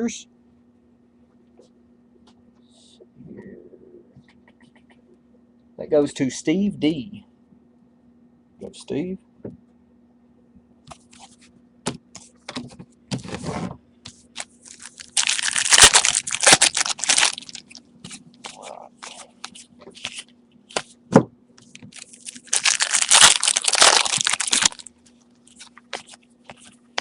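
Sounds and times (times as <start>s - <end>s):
card pack wrappers crackling: 14.4s - 17.8s, 21.7s - 24.9s, 25.5s - 27.0s.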